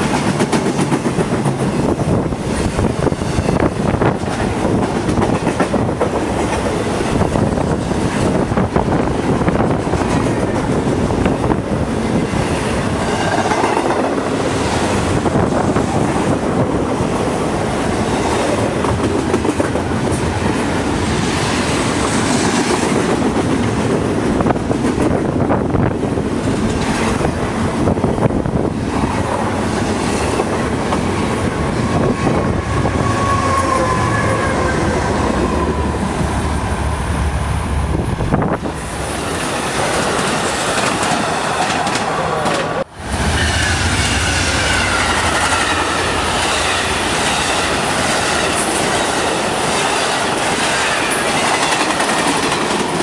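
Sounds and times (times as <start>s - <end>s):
wind noise on microphone: 0.0s - 42.0s
freight train rumbling past: 0.0s - 53.0s
passenger trains passing: 0.0s - 53.0s.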